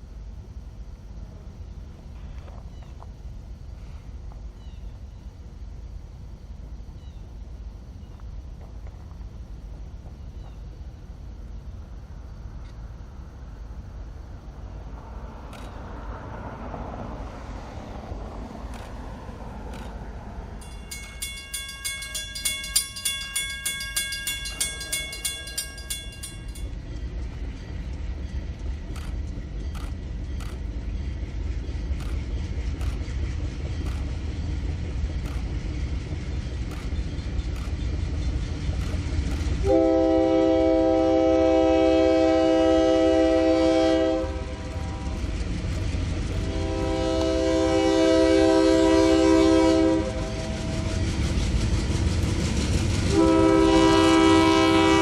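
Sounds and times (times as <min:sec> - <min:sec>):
diesel locomotive engine rumble: 0:00.0 - 0:55.0
wheels clicking over rails: 0:18.1 - 0:31.0, 0:31.8 - 0:39.7, 0:44.4 - 0:46.6
bell ringing rapidly: 0:20.6 - 0:26.7
air horn blasts: 0:39.6 - 0:45.2, 0:46.4 - 0:50.9, 0:53.1 - 0:55.0.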